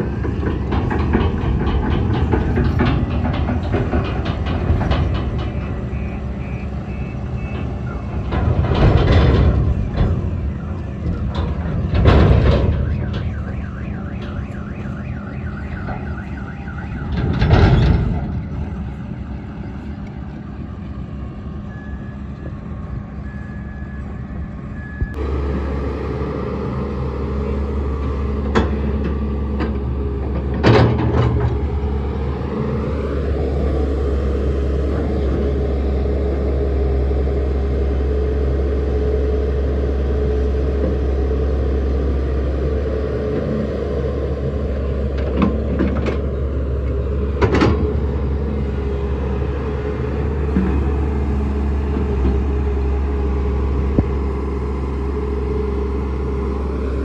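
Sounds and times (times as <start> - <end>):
excavator diesel engine under load: 0.0 - 57.0.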